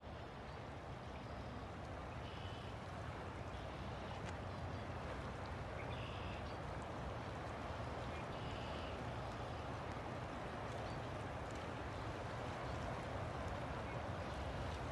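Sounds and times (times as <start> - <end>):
river water flowing: 0.0 - 14.9.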